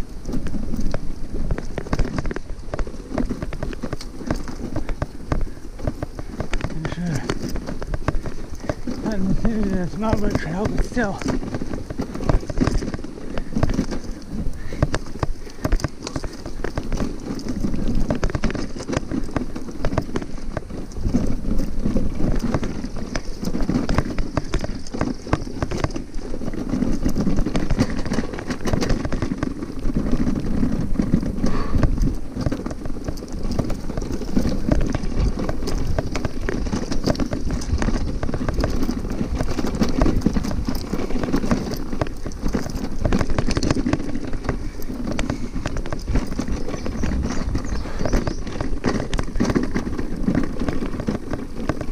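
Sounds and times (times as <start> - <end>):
bike rattling over bumps: 0.0 - 51.9
tyres rumbling on ground: 0.0 - 51.9.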